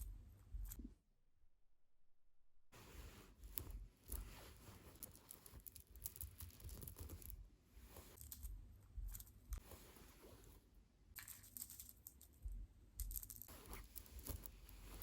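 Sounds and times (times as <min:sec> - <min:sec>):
beads clicking and tapping: 0:03.4 - 0:07.4, 0:08.1 - 0:09.6, 0:11.1 - 0:15.0.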